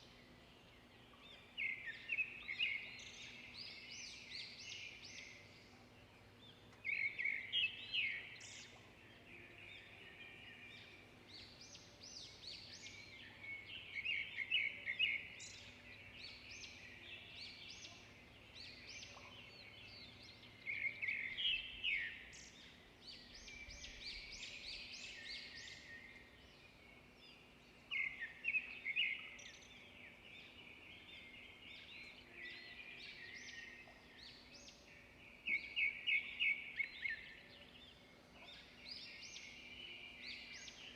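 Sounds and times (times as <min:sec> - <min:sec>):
soft bird chirps and calls: 0:00.0 - 0:40.9.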